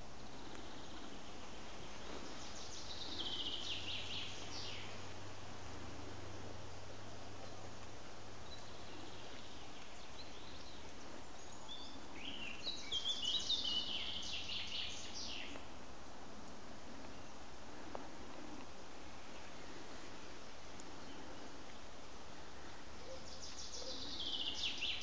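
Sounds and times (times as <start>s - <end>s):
songbird singing: 0.0s - 25.0s
steady background hiss: 0.0s - 25.0s.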